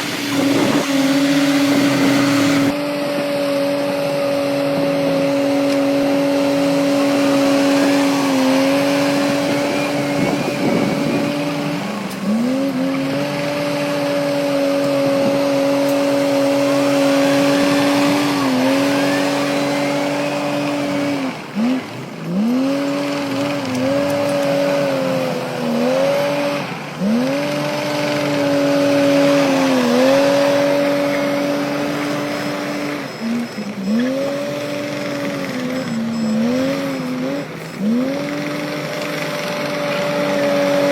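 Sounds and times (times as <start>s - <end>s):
heavy diesel engine under load: 0.0s - 40.9s.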